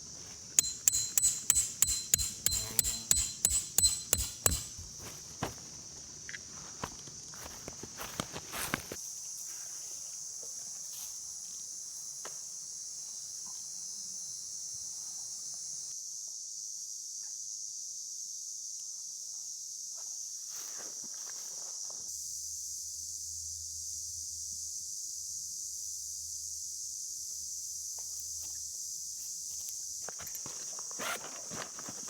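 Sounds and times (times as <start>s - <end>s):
insects chirping chorus: 0.0s - 15.9s.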